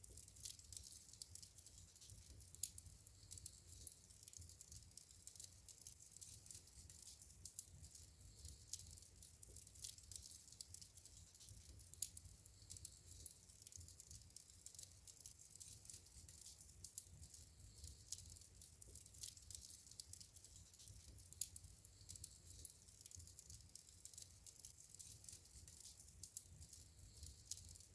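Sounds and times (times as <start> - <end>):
wood fire crackling: 0.0 - 27.9.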